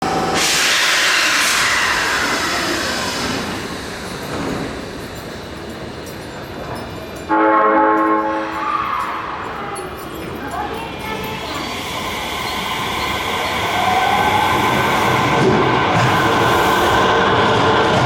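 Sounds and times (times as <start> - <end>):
train horn: 7.3 - 8.9
subway train motor whine: 11.5 - 18.0.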